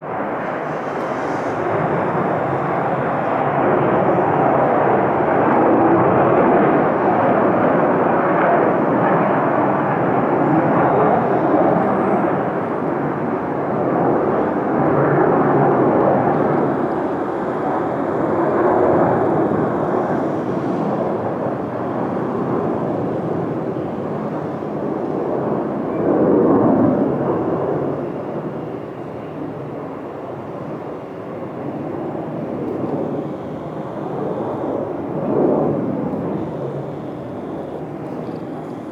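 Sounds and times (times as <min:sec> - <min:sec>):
fighter jet taking off: 0:00.0 - 0:28.7, 0:29.3 - 0:38.9.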